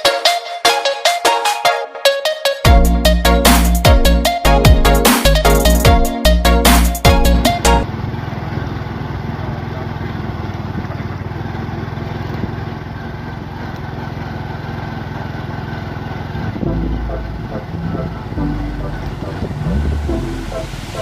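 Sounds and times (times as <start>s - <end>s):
electronic music: 0.0s - 7.8s, 16.6s - 21.0s
motorcycle engine running: 7.4s - 21.0s
low rumble: 16.5s - 21.0s.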